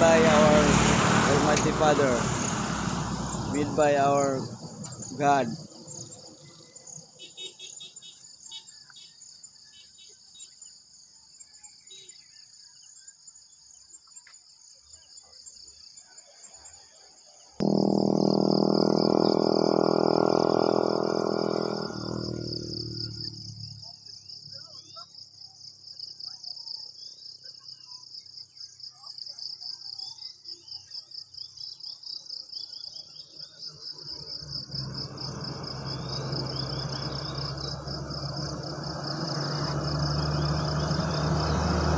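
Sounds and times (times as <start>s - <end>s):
loud pitched drone: 0.0s - 6.0s, 17.6s - 23.0s
crickets and insects chorus: 0.0s - 19.2s, 21.5s - 41.9s.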